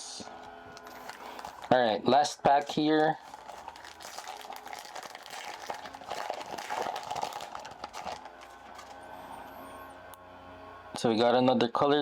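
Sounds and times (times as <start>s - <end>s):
faint steady hum: 0.0s - 12.0s
foil wrapper crinkling: 0.7s - 9.1s.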